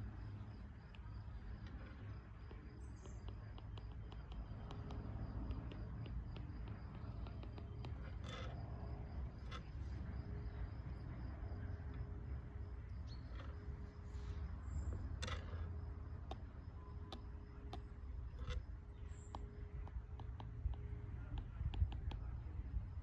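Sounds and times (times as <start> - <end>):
faint high insect trill: 0.0 - 19.8
steady low rumble: 0.0 - 23.0
small clicks and taps: 0.8 - 9.7, 14.9 - 22.8.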